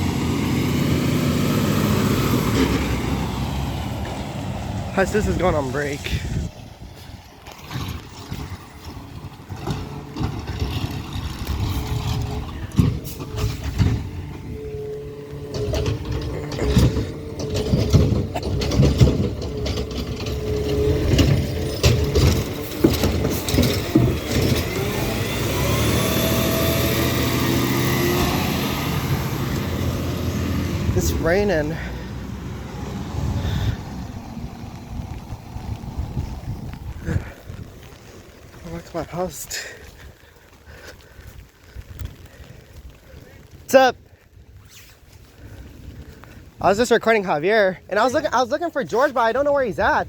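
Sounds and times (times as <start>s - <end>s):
truck engine rumbling: 0.0s - 50.0s
metal clanks: 15.4s - 25.0s.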